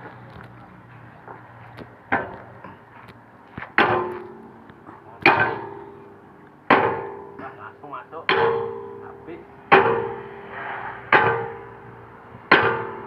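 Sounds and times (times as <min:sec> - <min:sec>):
hammer ringing on steel: 0:05.3 - 0:10.4, 0:11.2 - 0:13.0.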